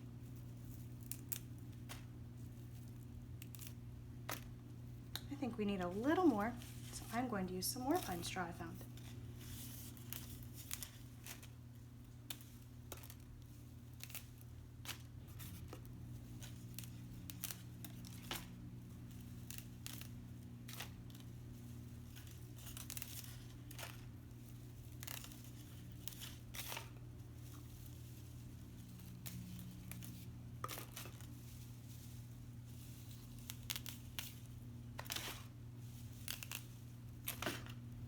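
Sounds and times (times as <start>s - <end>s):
pine needles snapping: 0.7s - 2.1s, 32.9s - 37.8s.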